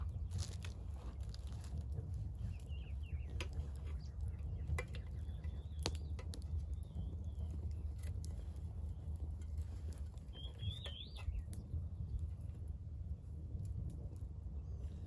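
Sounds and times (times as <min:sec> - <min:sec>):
campfire crackling and popping: 0:00.0 - 0:12.7
faint birds calling: 0:02.4 - 0:12.2.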